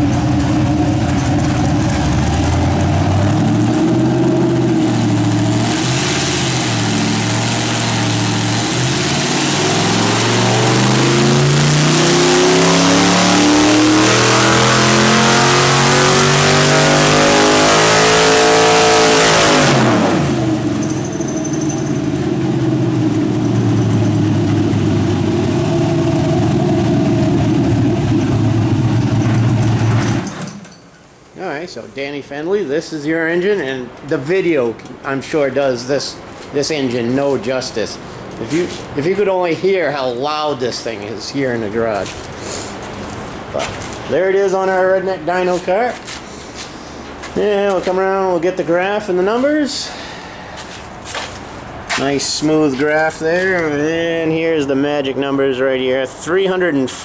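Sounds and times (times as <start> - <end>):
engine revving on dyno: 0.0 - 30.5.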